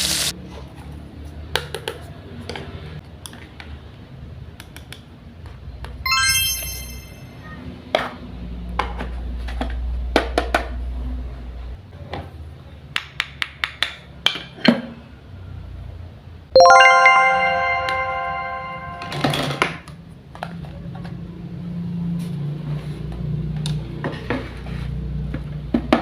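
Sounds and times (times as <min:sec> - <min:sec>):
bright toy chime: 0:06.1 - 0:07.5, 0:16.6 - 0:19.7.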